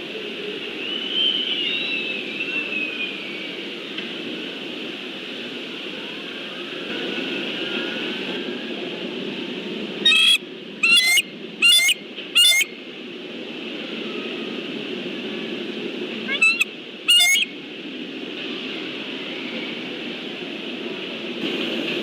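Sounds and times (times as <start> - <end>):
steady background noise: 0.0 - 22.0
eagle high-pitched calls: 10.0 - 12.7, 16.3 - 17.5.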